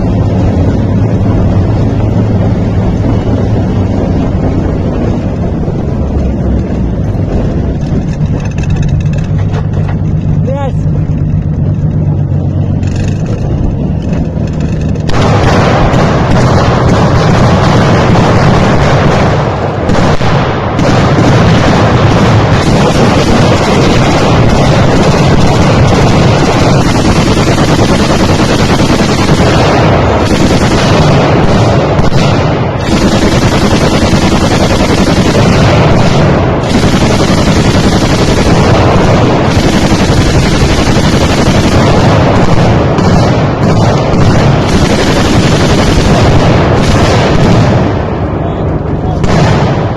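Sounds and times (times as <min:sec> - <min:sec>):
heavy automatic gunfire: 0:07.8 - 0:49.9.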